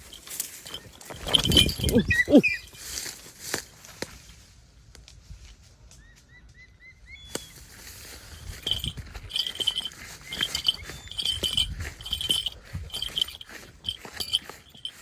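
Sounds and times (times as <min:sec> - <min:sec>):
clicks and rustles: 0:00.0 - 0:04.2, 0:08.0 - 0:15.0
small bird chirping: 0:00.6 - 0:03.0.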